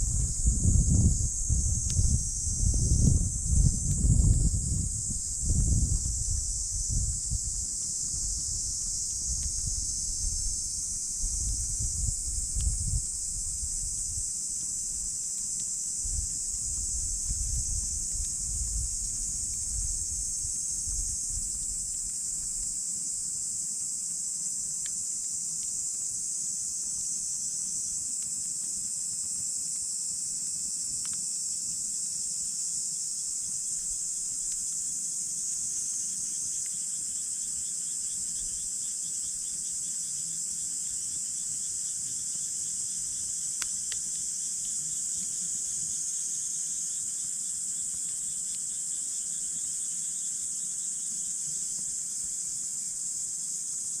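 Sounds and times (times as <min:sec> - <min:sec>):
crickets and insects chorus: 0:00.0 - 0:54.0
insect rapid chirping: 0:00.0 - 0:54.0
campfire faint pops: 0:03.6 - 0:22.8.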